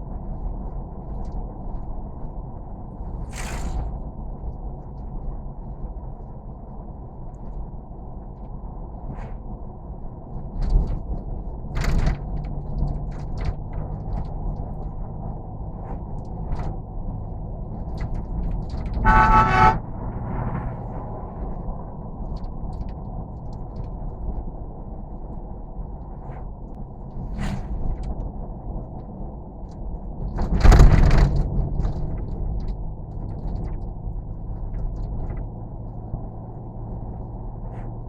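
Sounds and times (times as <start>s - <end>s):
vehicle engine rumbling: 0.0s - 38.0s
car horn blast: 19.0s - 21.1s.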